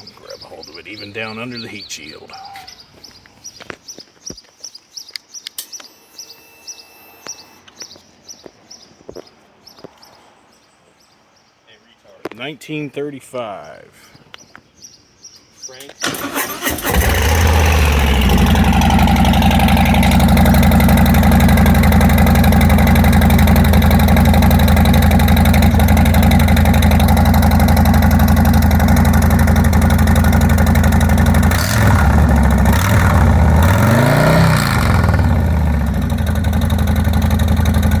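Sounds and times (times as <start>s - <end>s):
motorcycle engine idling: 16.0s - 38.0s.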